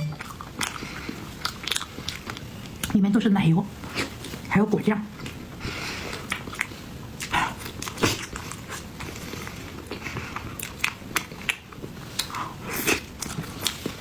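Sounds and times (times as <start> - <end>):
wet mouth chewing sounds: 0.1 - 3.0, 6.0 - 14.0.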